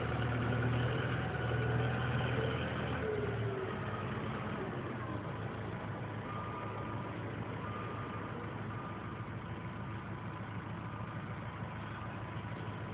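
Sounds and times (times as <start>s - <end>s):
tractor diesel engine idling: 0.0s - 12.9s.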